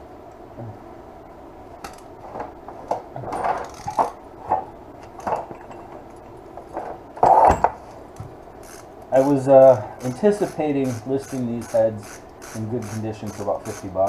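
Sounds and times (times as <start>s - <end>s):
metal parts and tools clattering: 3.2s - 7.8s.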